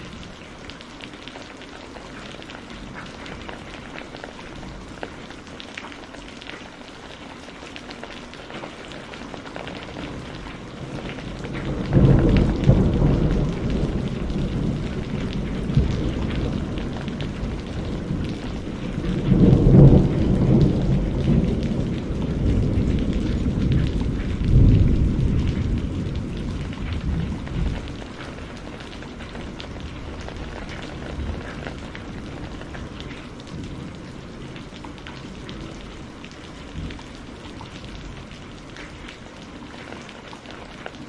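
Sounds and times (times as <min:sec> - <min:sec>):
steady rain: 0:00.0 - 0:41.0
thunder rumbling: 0:09.6 - 0:38.7.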